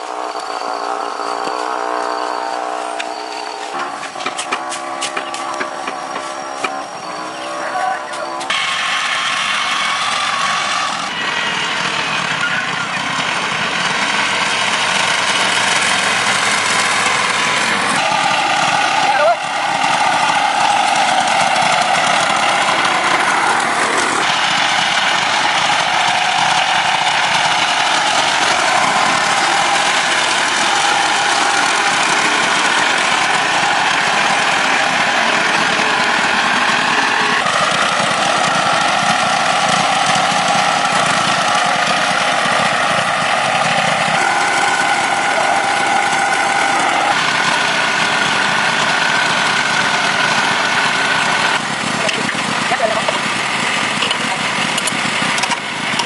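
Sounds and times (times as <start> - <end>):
engine running with whine: 0.0 - 56.0.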